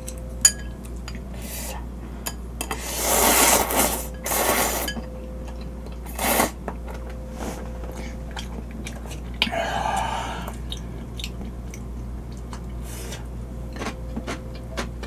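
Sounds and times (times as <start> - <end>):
tableware clink: 0.0 - 1.2
noodles slurped: 2.8 - 4.9, 6.1 - 6.6.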